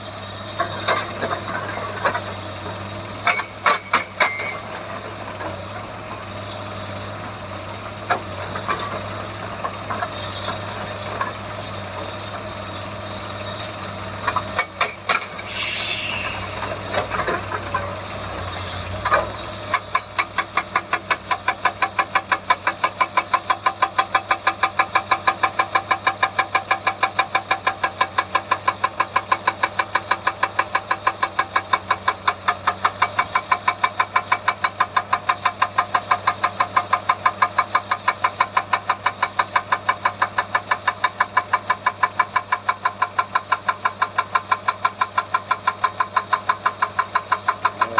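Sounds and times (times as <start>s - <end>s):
hydraulic rock breaker hammering: 3.2s - 4.7s.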